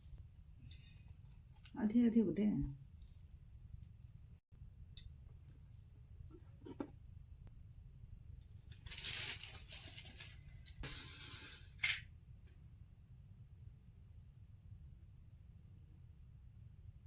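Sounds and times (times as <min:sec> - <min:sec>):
brief rustle: 0:08.7 - 0:12.0.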